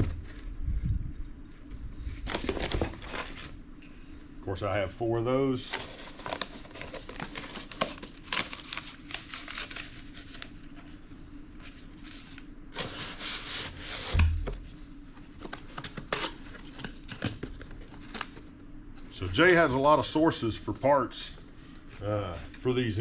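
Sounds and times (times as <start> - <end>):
packaging crinkling: 1.5 - 3.6, 5.7 - 10.7.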